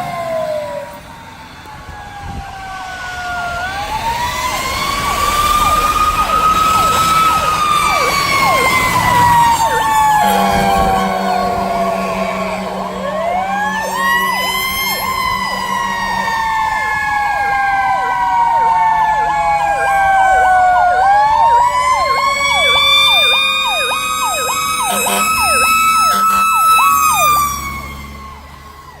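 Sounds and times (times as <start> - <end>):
electronic siren sweeping: 0.0 - 29.0
slow-winding siren: 0.0 - 29.0
short horn blasts: 10.2 - 16.8, 24.8 - 26.8.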